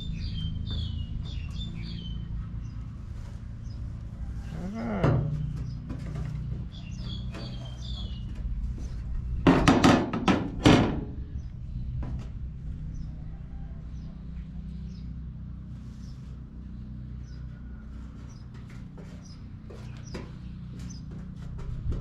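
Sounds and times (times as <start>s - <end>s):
small birds chirping: 0.0s - 3.0s, 3.6s - 9.0s, 13.9s - 21.4s
low steady hum: 0.0s - 22.0s.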